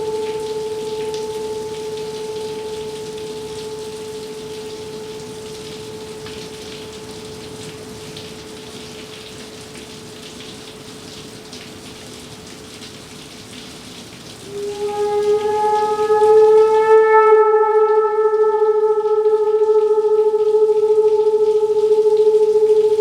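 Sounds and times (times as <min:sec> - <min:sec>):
gong ringing: 0:00.0 - 0:09.3, 0:14.5 - 0:23.0
rain hiss: 0:00.0 - 0:16.8.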